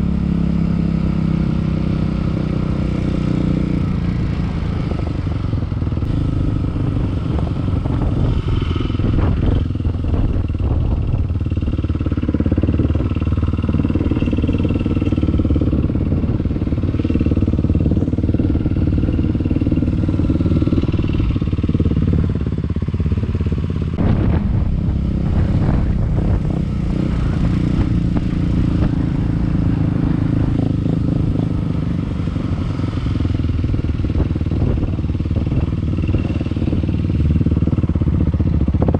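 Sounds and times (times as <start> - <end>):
dirt bike engine: 2.3 - 38.9.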